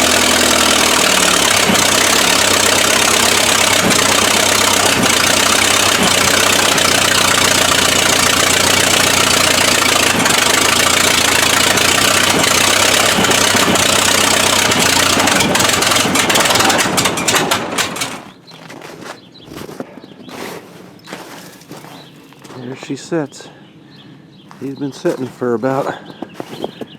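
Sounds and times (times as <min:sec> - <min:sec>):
engine idling: 0:00.0 - 0:18.4.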